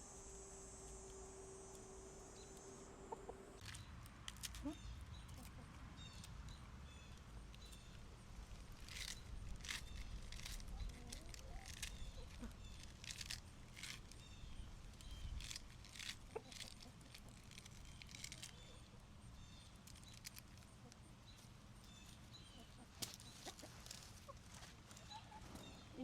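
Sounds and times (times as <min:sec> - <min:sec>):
chickens clucking and chirping: 0:01.3 - 0:08.1, 0:08.8 - 0:26.0
light clicks and rustles: 0:06.2 - 0:18.8.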